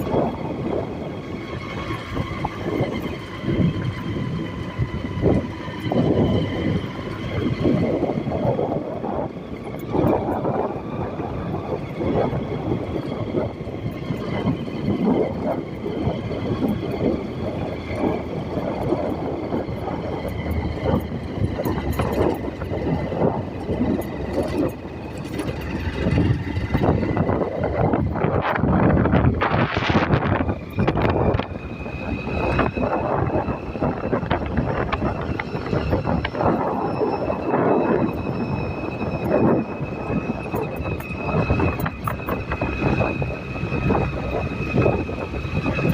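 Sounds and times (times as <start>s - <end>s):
moving vehicle rumbling: 0.0s - 45.9s
wind buffeting microphone: 0.0s - 45.9s.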